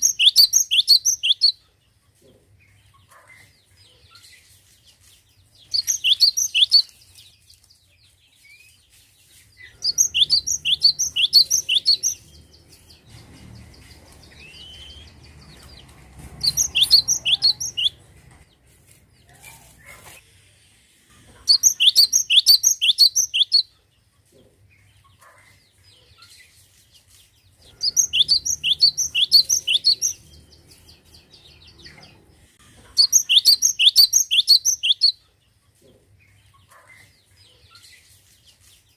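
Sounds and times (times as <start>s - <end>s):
bird singing rapid high notes: 0.0s - 1.5s, 9.8s - 13.0s, 16.4s - 18.0s, 27.8s - 31.7s, 33.0s - 35.1s.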